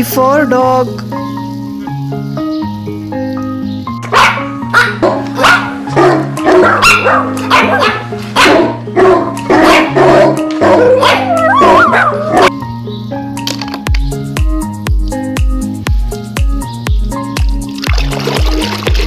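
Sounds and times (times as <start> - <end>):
background music: 0.0 - 19.0
dog barking: 4.0 - 12.6.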